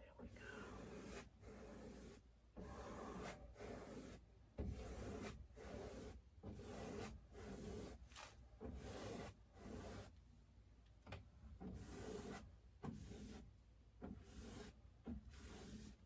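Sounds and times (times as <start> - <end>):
paintbrush rubbing on canvas: 0.5 - 8.0, 8.7 - 10.1, 11.7 - 13.5, 14.1 - 16.0.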